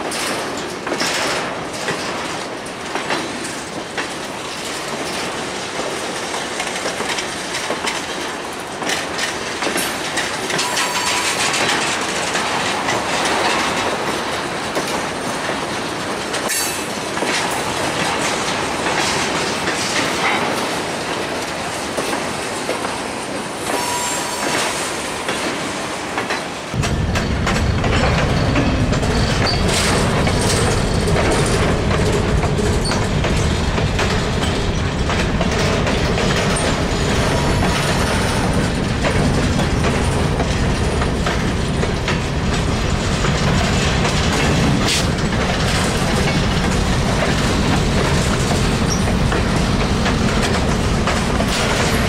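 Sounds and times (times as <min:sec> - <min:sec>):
train wheels clattering over rail joints: 0:00.0 - 0:52.0
heavy low rumble: 0:26.8 - 0:35.8.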